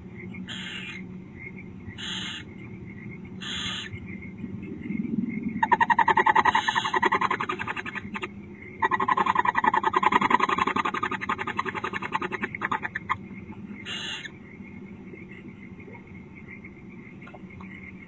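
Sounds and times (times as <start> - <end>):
owl chittering calls: 0.4 - 1.0, 1.9 - 2.5, 3.4 - 4.0, 5.6 - 14.4.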